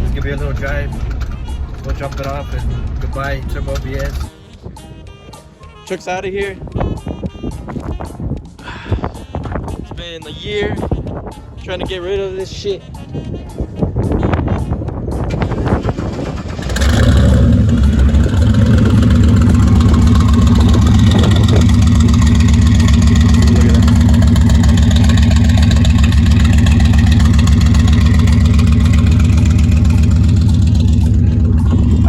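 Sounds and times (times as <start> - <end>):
vehicle engine running steadily: 0.0 - 4.5, 14.1 - 32.0.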